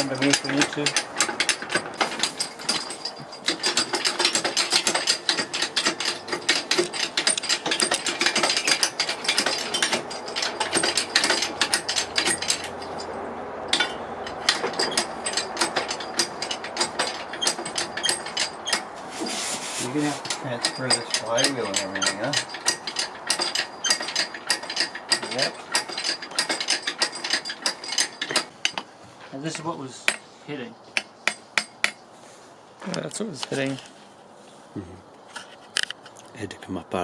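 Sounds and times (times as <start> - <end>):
ratchet-like metal clicking and rattling: 0.0 - 13.1, 13.7 - 19.0, 19.9 - 28.9.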